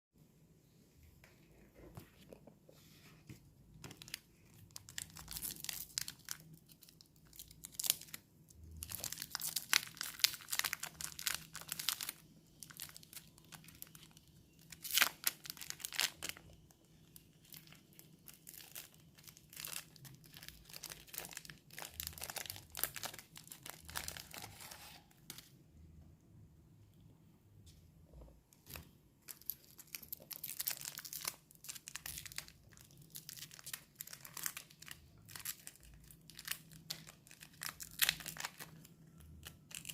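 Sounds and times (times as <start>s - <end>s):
wrappers crinkling and tearing: 3.9s - 25.1s, 29.3s - 39.9s.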